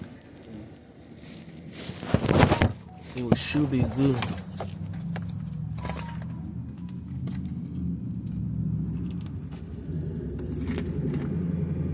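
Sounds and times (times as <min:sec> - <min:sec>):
car engine idling: 0:02.8 - 0:11.9.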